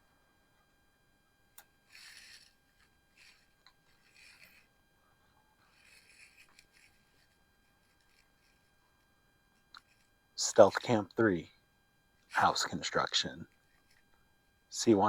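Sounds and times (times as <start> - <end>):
faint scratchy rustles: 1.9 - 8.8.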